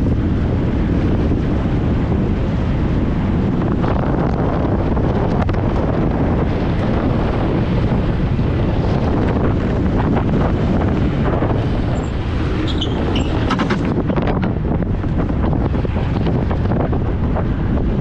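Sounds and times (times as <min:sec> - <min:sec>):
wind rushing over microphone: 0:00.0 - 0:18.0
brief high squeaks: 0:12.6 - 0:13.8.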